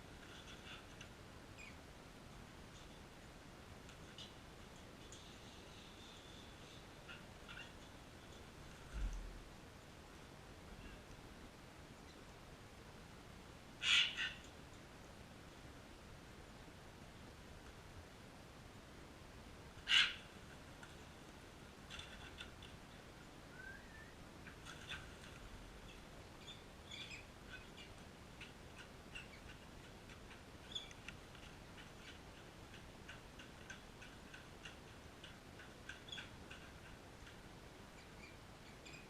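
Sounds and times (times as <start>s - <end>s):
parrot squawk: 13.8s - 14.4s, 19.8s - 20.3s.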